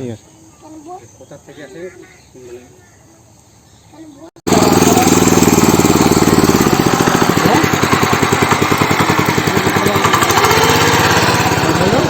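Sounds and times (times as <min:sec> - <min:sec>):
tiller engine chugging: 0:04.5 - 0:12.0.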